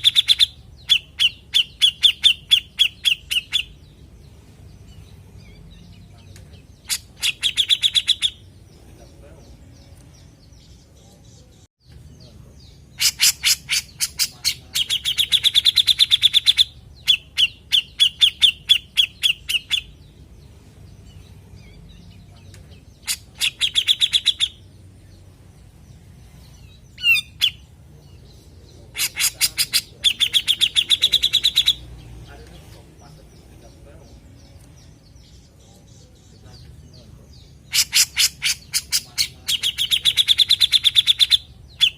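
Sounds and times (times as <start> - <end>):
bulbul calling with fast trill: 0.0 - 4.0, 6.6 - 8.8, 12.6 - 20.1, 22.8 - 24.7, 27.0 - 31.9, 37.4 - 41.9.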